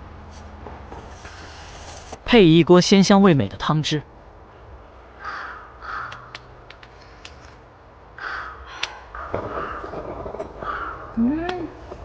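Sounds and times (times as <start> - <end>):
harsh animal calls: 5.1 - 6.4, 8.2 - 11.8
sharp clicks: 6.1 - 7.6.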